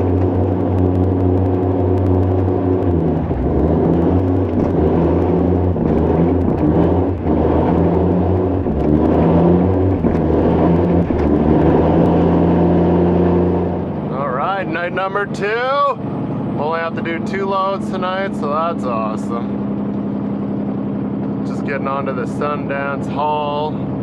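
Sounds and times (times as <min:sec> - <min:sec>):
diesel truck engine under load: 0:00.0 - 0:24.0.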